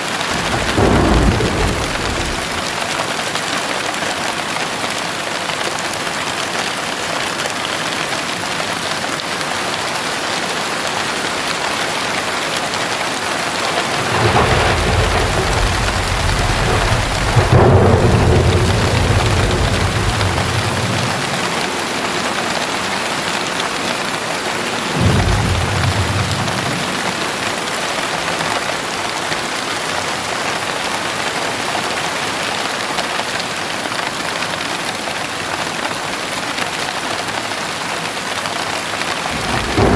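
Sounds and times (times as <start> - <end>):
heavy rain falling: 0.0 - 39.9
thunder rumbling: 0.3 - 3.0, 12.9 - 28.0, 39.2 - 39.9.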